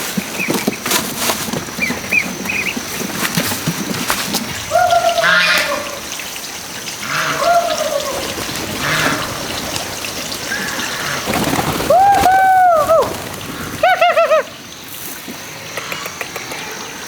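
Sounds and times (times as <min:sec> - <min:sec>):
trickling water: 0:01.2 - 0:15.7
bird calling: 0:01.5 - 0:14.8.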